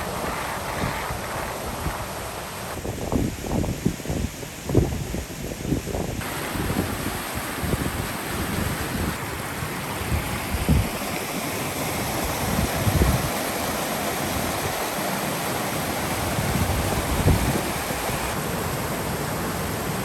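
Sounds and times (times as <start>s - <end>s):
wind buffeting microphone: 0.0s - 9.2s, 10.0s - 11.0s, 12.2s - 13.4s, 16.2s - 18.4s
mountain stream rushing: 6.2s - 20.0s.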